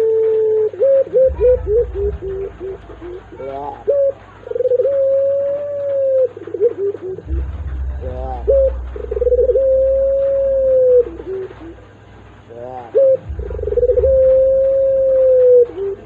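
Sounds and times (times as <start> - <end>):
dove cooing: 0.0 - 16.0
low rumble: 1.1 - 16.0.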